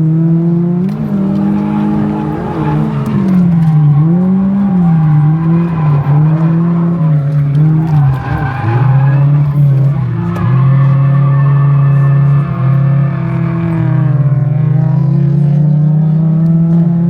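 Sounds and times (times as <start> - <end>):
car engine revving high: 0.0 - 17.0
tyre squeal: 0.8 - 14.4.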